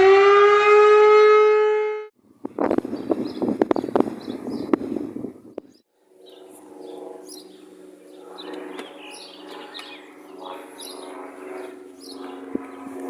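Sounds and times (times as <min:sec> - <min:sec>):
steady low hum: 0:02.2 - 0:13.0
small songbirds chirping: 0:02.6 - 0:13.0.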